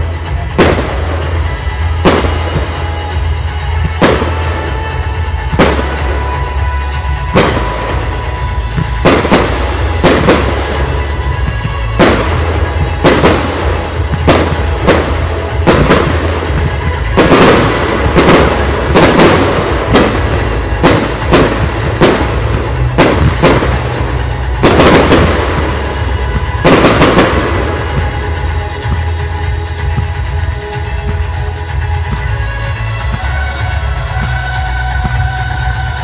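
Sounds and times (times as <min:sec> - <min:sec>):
fireworks bangs: 0:00.0 - 0:36.0.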